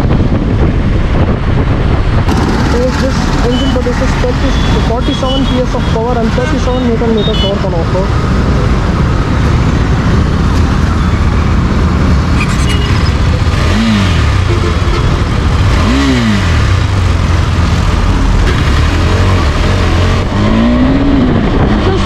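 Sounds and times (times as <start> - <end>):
wind noise: 0.0 - 3.5, 8.0 - 22.0
motorcycle engine under way: 2.3 - 4.8, 9.0 - 22.0.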